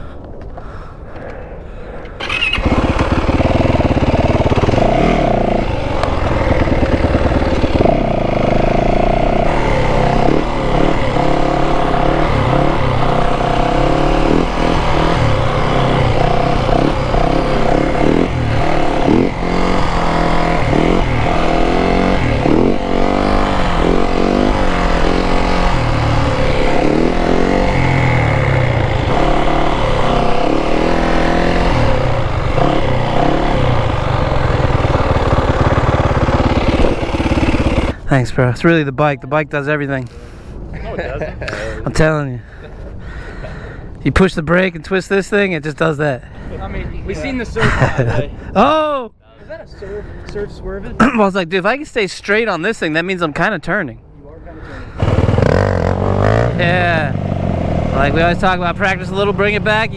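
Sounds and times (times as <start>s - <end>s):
motorcycle engine revving: 2.1s - 38.1s, 54.6s - 59.9s.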